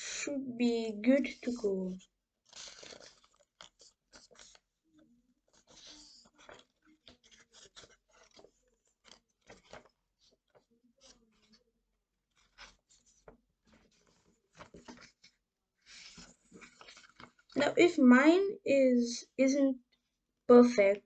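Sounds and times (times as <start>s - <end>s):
paper rustling and crinkling: 1.2s - 4.7s, 5.4s - 11.7s, 12.3s - 17.7s.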